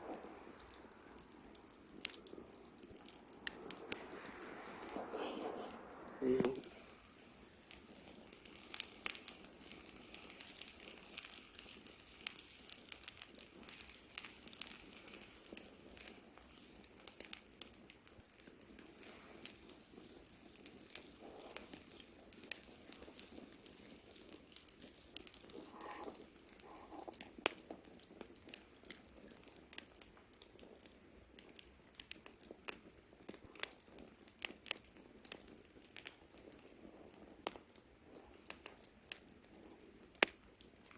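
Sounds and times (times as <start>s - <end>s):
wood crackling and popping in campfire: 0.0s - 40.9s.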